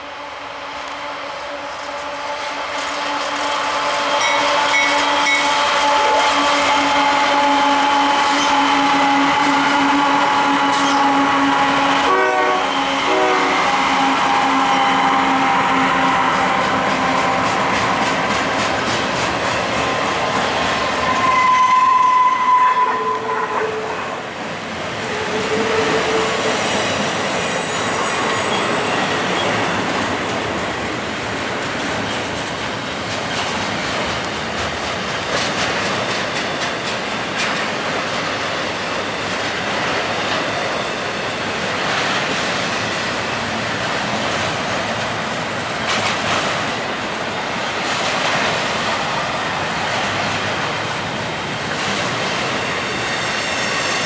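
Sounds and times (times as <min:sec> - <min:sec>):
freight train rumbling: 0:00.0 - 0:54.0
wheels clicking over rail joints: 0:16.4 - 0:21.3, 0:29.4 - 0:52.5
wheel squeal: 0:51.9 - 0:54.0.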